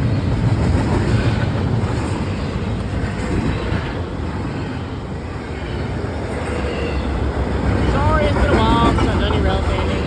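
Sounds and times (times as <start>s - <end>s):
train cars rolling past: 0.0s - 10.0s.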